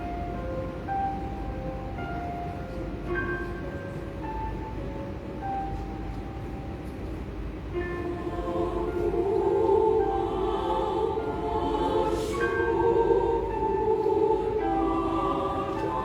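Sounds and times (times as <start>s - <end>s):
women's choir singing: 7.8s - 16.0s.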